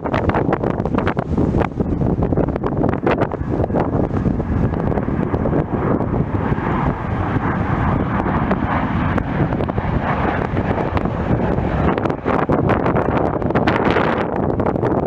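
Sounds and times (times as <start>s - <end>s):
jet airliner engines passing: 0.0s - 15.0s
wind buffeting microphone: 0.0s - 15.0s.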